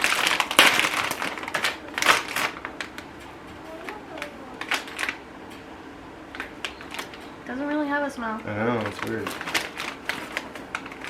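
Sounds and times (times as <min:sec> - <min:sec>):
plastic bag crinkling and tearing: 0:00.0 - 0:05.2, 0:08.6 - 0:11.0.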